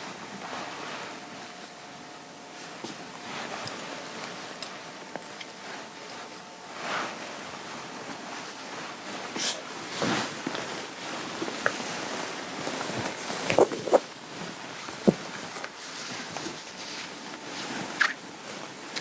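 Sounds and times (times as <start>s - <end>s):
clothing fabric rustling: 5.3s - 19.0s.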